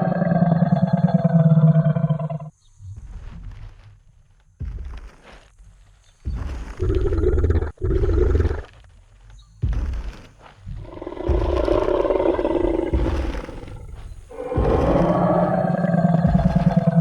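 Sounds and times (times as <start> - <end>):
deep rough dinosaur roars: 0.0 - 2.5, 10.8 - 17.0
heavy stomping footsteps: 2.8 - 17.0.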